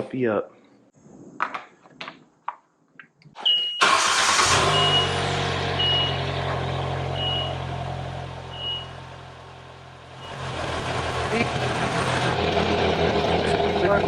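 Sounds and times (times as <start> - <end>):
car engine cranking and idling: 3.8 - 14.0.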